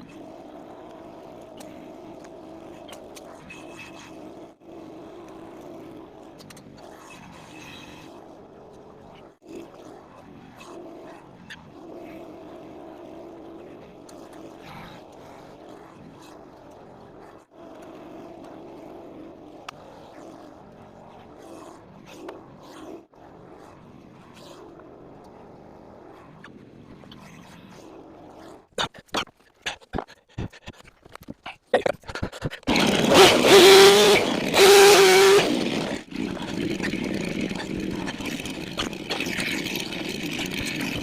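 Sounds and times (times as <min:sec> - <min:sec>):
small gas engine running: 0:32.1 - 0:41.0.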